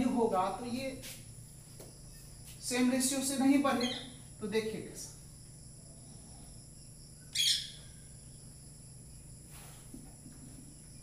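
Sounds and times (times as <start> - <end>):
bird chirp: 3.8 - 4.2, 7.1 - 9.2.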